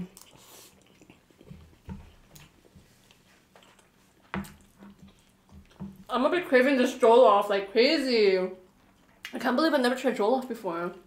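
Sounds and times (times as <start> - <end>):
people chewing: 0.0 - 6.1, 8.7 - 9.3.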